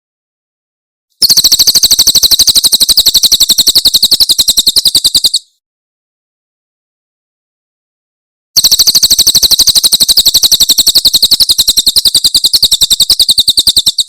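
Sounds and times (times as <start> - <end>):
bird song of rapid high notes: 1.2 - 5.6, 8.6 - 14.0.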